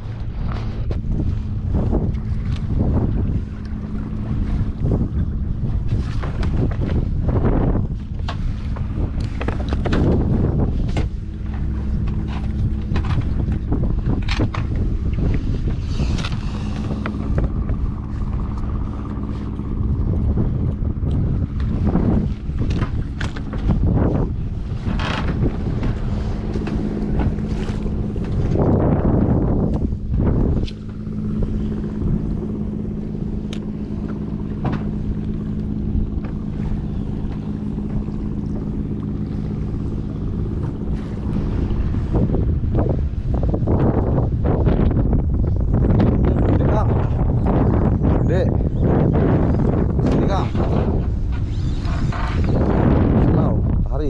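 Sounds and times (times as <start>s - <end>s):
motor humming: 0.0s - 53.8s
strong wind buffeting microphone: 0.0s - 54.0s.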